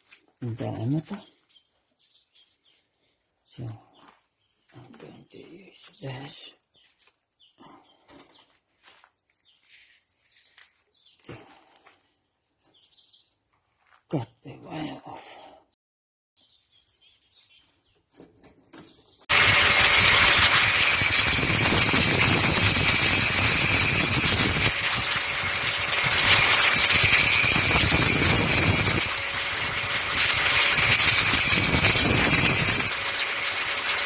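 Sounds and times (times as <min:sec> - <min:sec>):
power tool cutting wire: 0:19.3 - 0:34.0.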